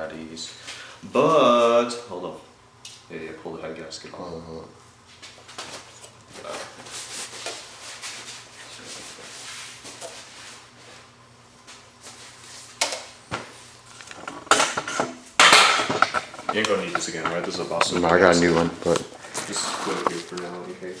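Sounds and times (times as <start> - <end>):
metal clanks: 13.9 - 20.4
metal rubbing and scraping: 13.9 - 20.6.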